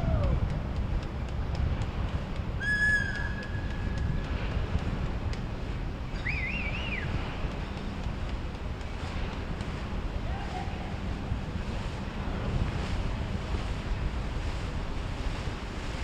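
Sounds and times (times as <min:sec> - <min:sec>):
water: 0:00.0 - 0:16.0
wind: 0:00.0 - 0:16.0
whistle-like tone: 0:02.6 - 0:03.4, 0:06.2 - 0:07.1.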